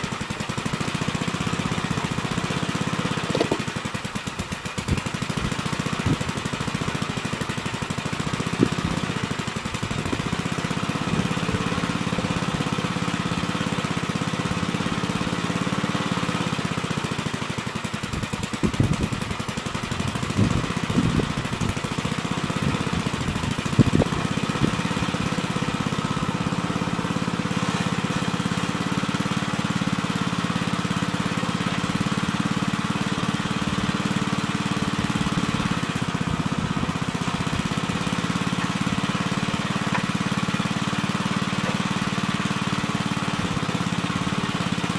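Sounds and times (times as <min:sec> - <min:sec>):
backhoe engine running: 0:00.0 - 0:44.9
short sharp clunks: 0:03.2 - 0:03.7.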